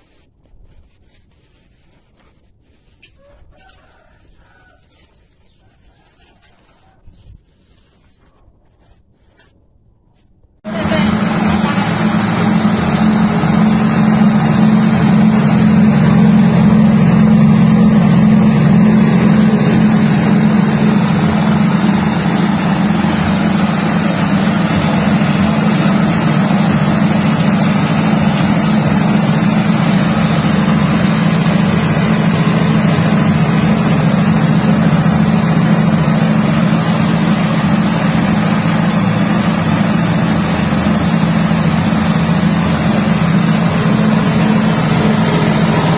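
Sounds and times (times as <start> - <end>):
strong low hum: 9.7 - 45.9
machine droning: 10.6 - 45.9.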